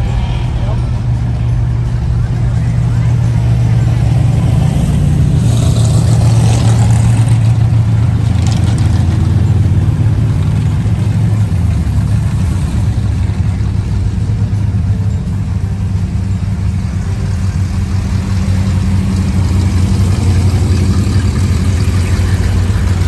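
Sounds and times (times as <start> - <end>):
higher-pitched noise: 0.0 - 6.9
car engine rumbling: 0.0 - 23.0.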